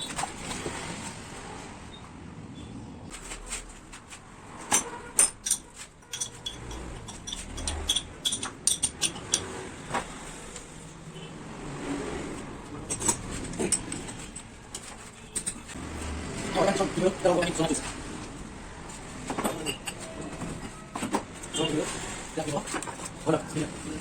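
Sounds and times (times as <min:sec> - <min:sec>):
metal tools clicking and clinking: 0:04.7 - 0:09.7, 0:12.8 - 0:15.8, 0:19.3 - 0:21.7.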